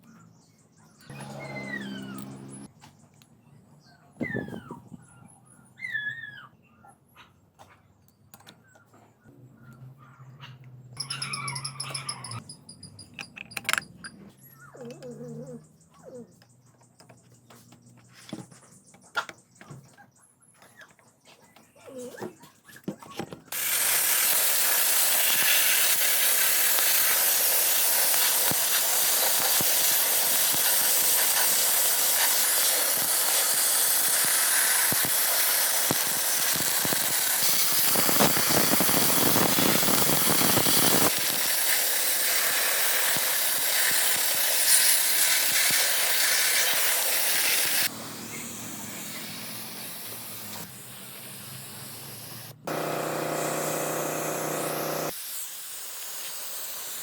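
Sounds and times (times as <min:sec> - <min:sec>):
spray gun hissing: 0:23.5 - 0:57.0.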